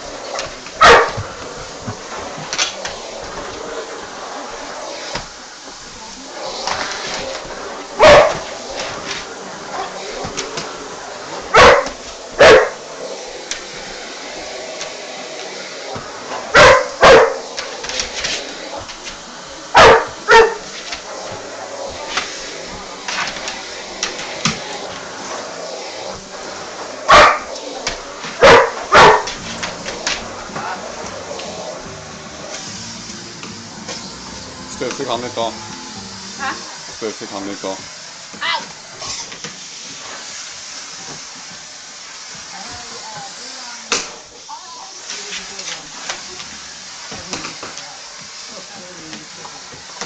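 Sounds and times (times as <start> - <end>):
dog barking: 0.8 - 1.2, 8.0 - 8.4, 11.5 - 12.8, 16.5 - 17.4, 19.7 - 20.7, 27.1 - 27.5, 28.4 - 29.4.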